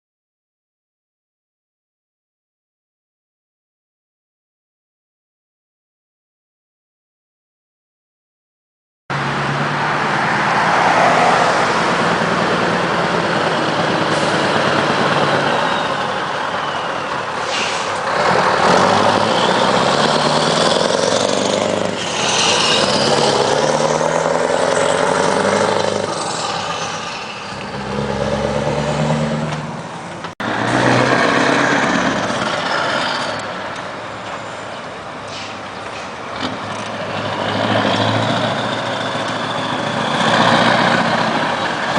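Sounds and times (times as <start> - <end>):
truck engine revving: 9.1 - 33.8, 36.3 - 41.9.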